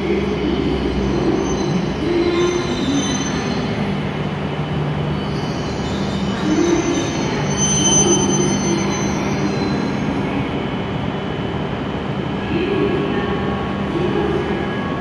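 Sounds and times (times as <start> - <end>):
train running hum: 0.0 - 15.0
high brake squeal: 1.1 - 3.8, 5.1 - 10.2.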